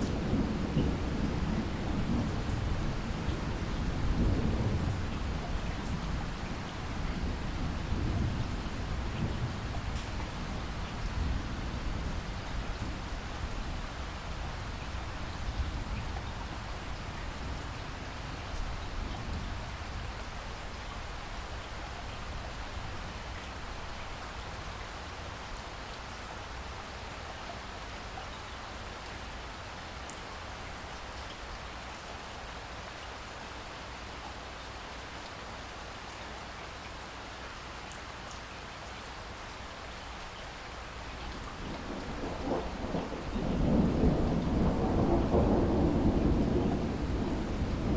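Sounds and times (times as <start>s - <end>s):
low thunder rumble: 0.0s - 16.7s, 41.3s - 47.9s
steady rain: 0.0s - 47.9s.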